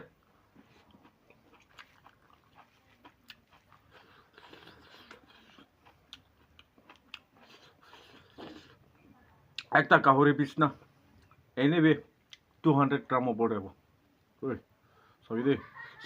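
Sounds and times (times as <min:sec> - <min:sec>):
chewing with mouth clicks: 0:00.2 - 0:08.9.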